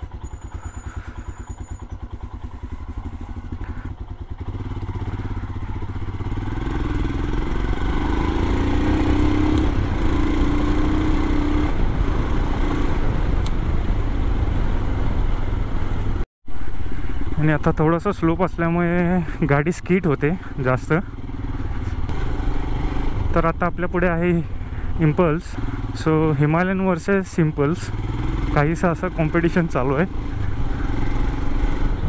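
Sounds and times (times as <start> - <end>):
motorcycle engine thumping: 0.0 - 7.7.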